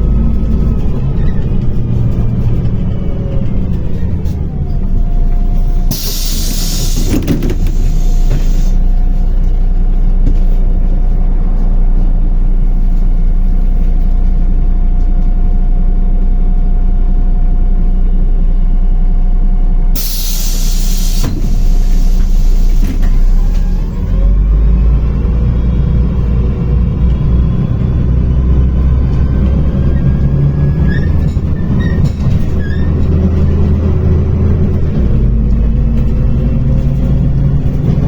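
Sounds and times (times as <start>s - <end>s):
bus engine running: 0.0s - 38.0s
compressed air hissing: 5.9s - 8.8s, 20.0s - 23.6s.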